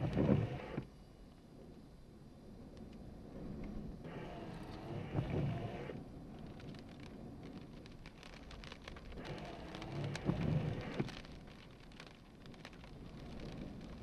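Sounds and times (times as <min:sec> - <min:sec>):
raindrops hitting: 0:04.0 - 0:14.0.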